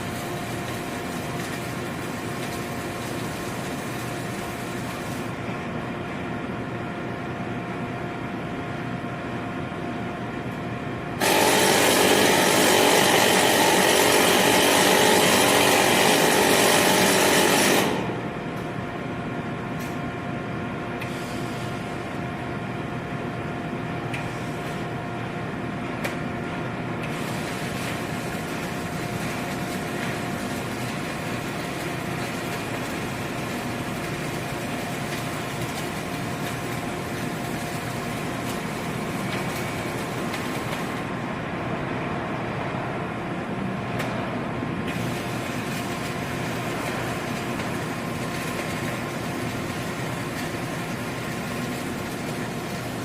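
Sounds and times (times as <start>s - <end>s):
factory machinery hum: 0.0s - 53.0s
loud power tool running: 11.2s - 18.3s.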